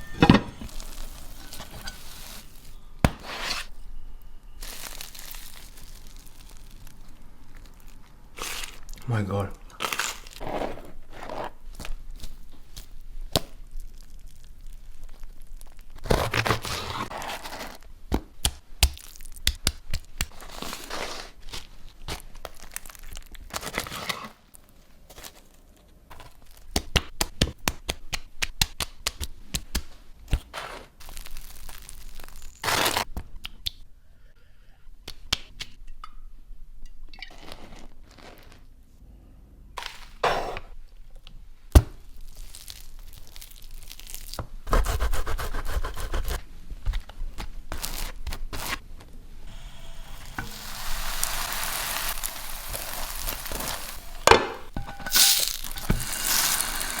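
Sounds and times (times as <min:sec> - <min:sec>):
sandwich crackling and crunching: 0:04.6 - 0:33.1, 0:41.8 - 0:46.4, 0:47.0 - 0:49.1, 0:50.0 - 0:57.0.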